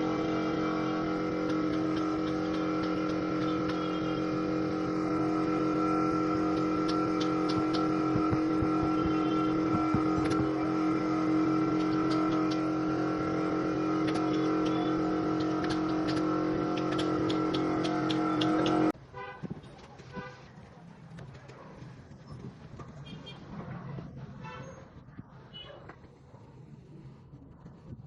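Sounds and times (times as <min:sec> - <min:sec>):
motor running steadily: 0:00.0 - 0:19.0
sharp ticks: 0:01.4 - 0:04.3, 0:06.4 - 0:12.9, 0:14.0 - 0:18.9.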